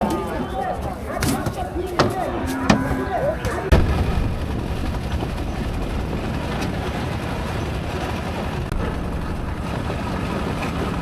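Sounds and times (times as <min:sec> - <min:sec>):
vehicle engine and road noise: 0:03.4 - 0:11.0.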